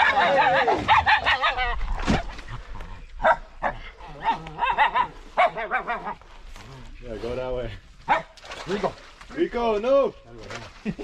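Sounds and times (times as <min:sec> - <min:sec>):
dogs barking and yelping: 0:00.0 - 0:02.3, 0:03.2 - 0:06.2, 0:08.1 - 0:08.4.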